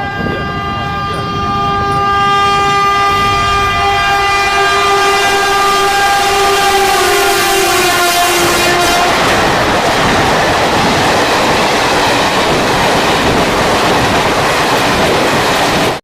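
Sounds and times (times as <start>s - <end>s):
train horn blast: 0.0s - 9.8s
moving train rumble: 0.0s - 16.0s.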